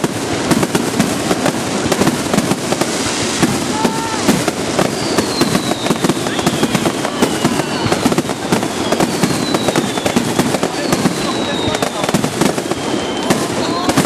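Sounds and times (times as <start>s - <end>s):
falling firework whistles: 0.0s - 14.0s
fireworks bangs and crackling pops: 0.0s - 14.0s.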